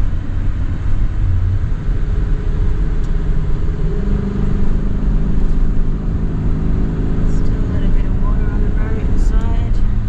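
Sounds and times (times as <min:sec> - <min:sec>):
car engine drone: 0:00.0 - 0:10.0
road rumble: 0:00.0 - 0:10.0.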